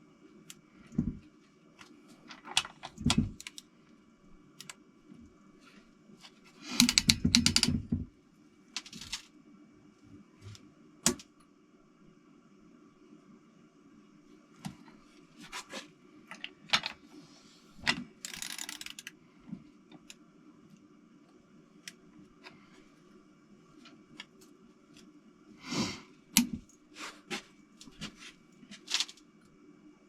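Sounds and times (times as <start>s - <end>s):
ratchet wrench clicking: 18.2s - 19.1s.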